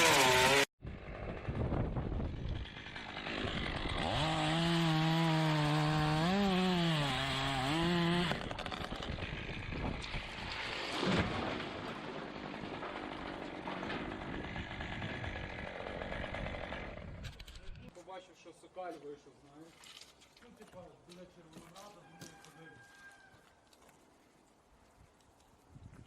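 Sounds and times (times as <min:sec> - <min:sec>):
chainsaw cutting wood: 0:00.0 - 0:11.5, 0:12.4 - 0:17.9.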